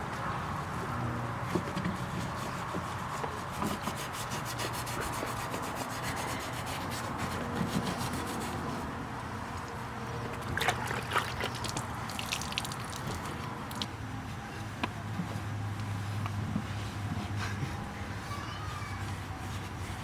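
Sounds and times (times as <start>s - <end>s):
wire brush scrubbing metal: 1.9s - 8.7s.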